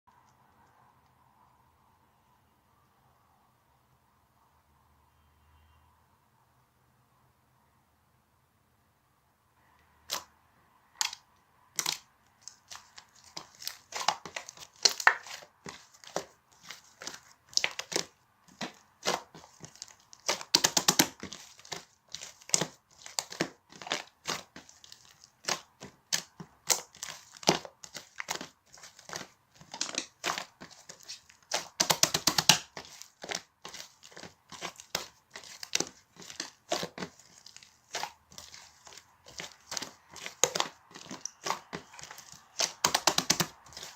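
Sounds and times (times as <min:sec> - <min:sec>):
slime squishing sticky pops: 0:11.8 - 0:43.9.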